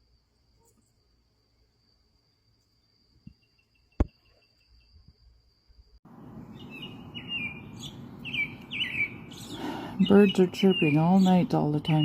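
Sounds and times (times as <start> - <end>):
bird chirping: 3.2 - 5.1, 6.1 - 12.0.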